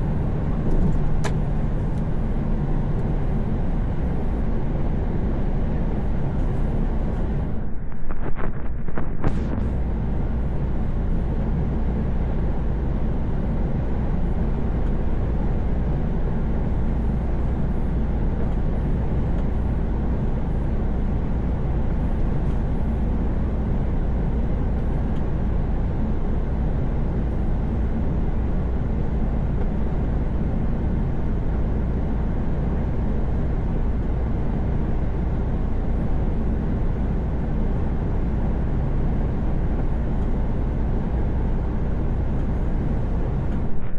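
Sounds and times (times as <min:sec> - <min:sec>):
tyre and road noise: 0:00.0 - 0:26.1
diesel engine hum: 0:00.0 - 0:43.9.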